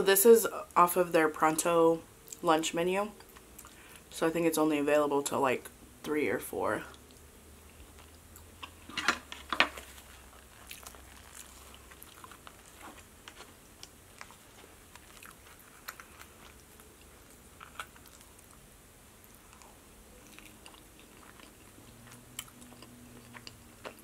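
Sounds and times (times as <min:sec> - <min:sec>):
chewing and wet mouth sounds: 0:03.2 - 0:04.0, 0:06.9 - 0:08.8, 0:09.8 - 0:24.0.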